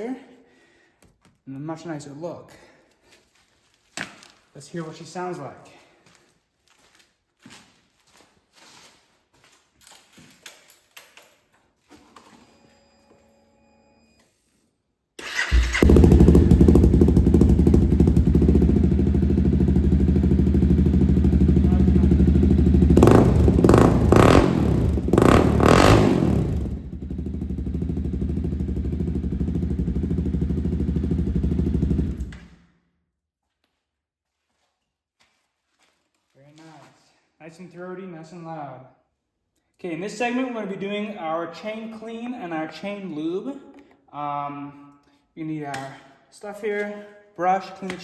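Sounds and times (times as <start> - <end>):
motorcycle engine idling and revving: 15.2 - 32.6.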